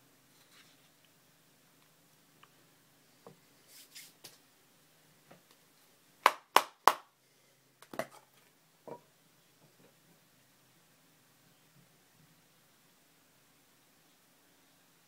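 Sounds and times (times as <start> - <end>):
soft rustling: 0.2 - 1.2.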